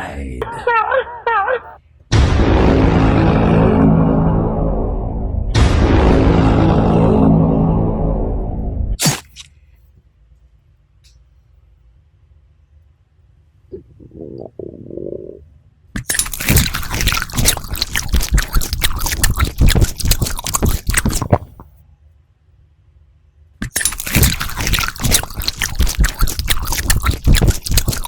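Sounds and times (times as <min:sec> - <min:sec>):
wet crackling chewing: 0:16.0 - 0:21.7, 0:23.6 - 0:28.0.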